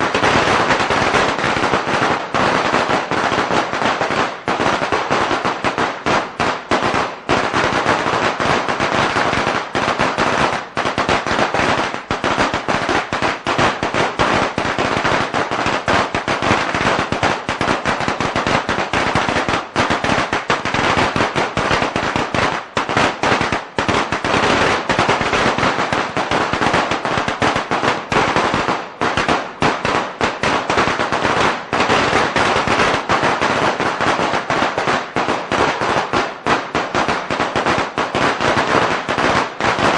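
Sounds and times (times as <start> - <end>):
firecrackers popping: 0.0 - 39.9.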